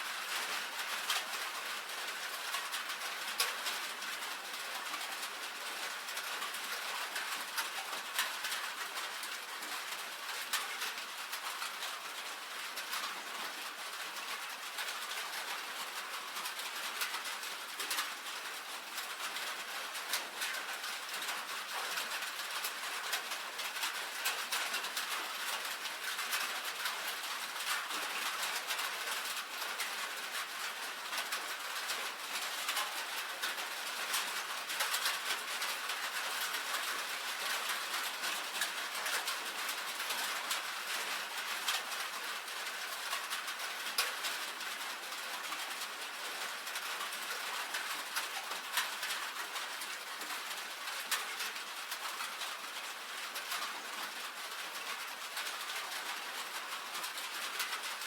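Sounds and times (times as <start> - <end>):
rain on a tin roof: 0.0 - 58.0.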